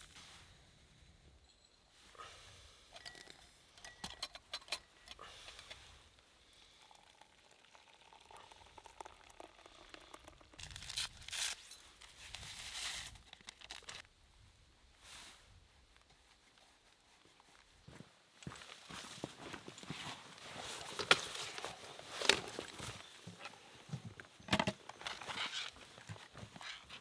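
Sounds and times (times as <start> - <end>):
crinkling and rustling handling noises: 8.9 - 14.1, 15.1 - 27.0.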